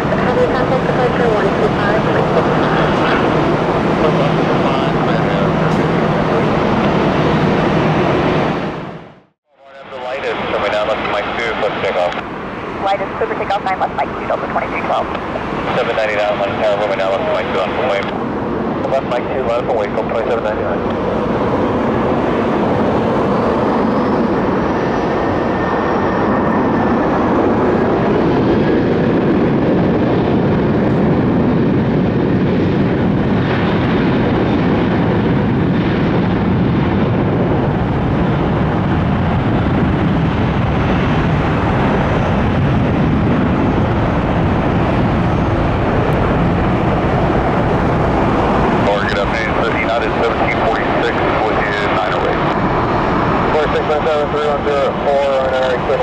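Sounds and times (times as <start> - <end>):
jet engines running loudly: 0.0 - 56.0.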